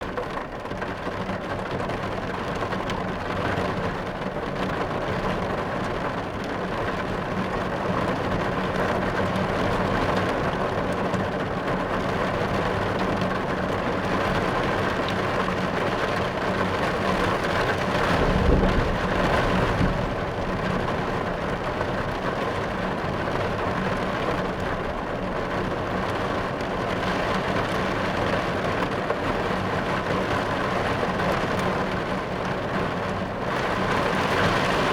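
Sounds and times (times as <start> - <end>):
rain on a car roof: 0.0 - 34.9
low rumble of thunder: 16.9 - 24.2.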